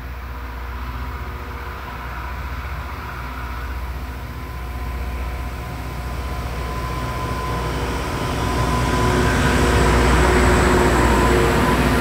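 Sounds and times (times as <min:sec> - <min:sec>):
train rumble with whining tones: 0:00.0 - 0:12.0.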